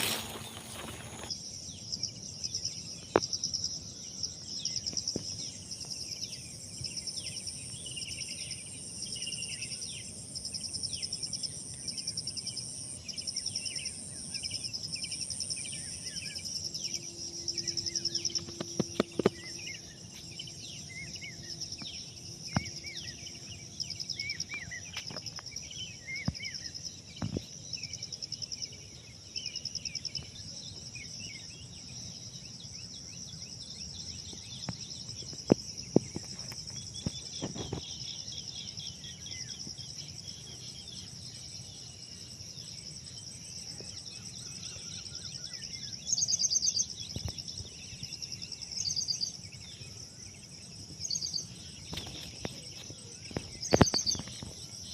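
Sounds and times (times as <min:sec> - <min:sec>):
birds chirping: 0:00.0 - 0:01.4, 0:44.5 - 0:54.9
insect trill: 0:00.0 - 0:54.9.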